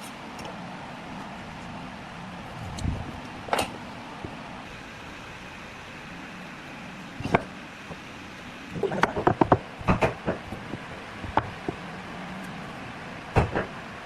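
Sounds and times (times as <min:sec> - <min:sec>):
steady background hum: 0:00.0 - 0:14.0
sharp knocks and clatters: 0:08.8 - 0:11.8.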